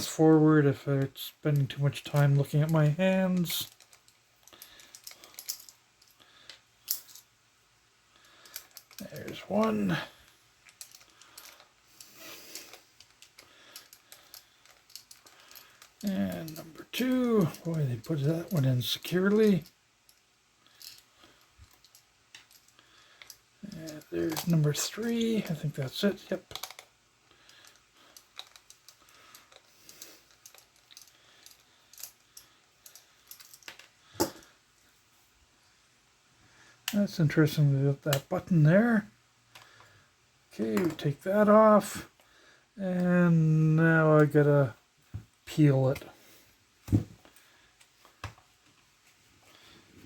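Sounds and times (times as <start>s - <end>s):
plastic toy parts clicking: 26.4s - 34.4s.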